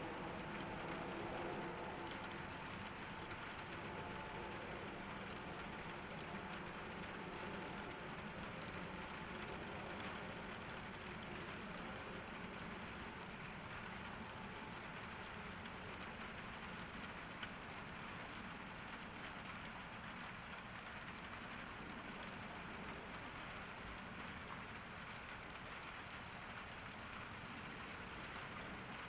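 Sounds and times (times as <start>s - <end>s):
rain patter: 0.0s - 29.0s.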